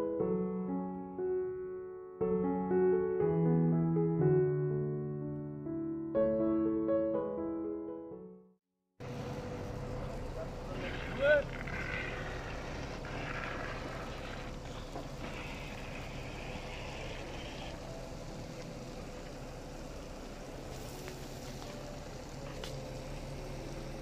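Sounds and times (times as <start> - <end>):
engine idling: 9.0 - 24.0.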